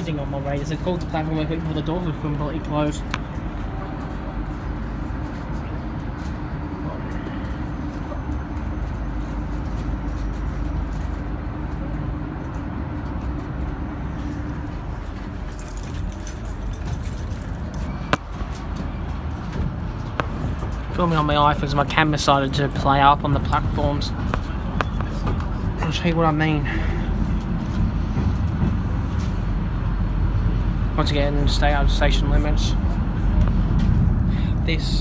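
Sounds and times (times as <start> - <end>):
passenger train rumbling: 0.0 - 35.0.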